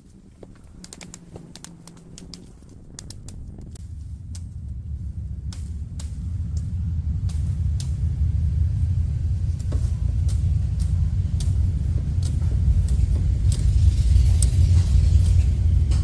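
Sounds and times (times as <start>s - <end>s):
sharp clicks and cracks: 0.0s - 4.8s
wind buffeting microphone: 0.0s - 16.0s.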